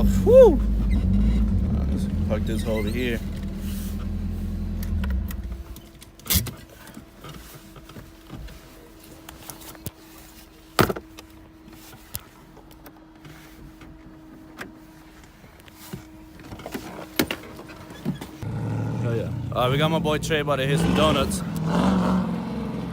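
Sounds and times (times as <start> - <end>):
car engine cutting off: 0.0 - 5.9, 18.4 - 22.9.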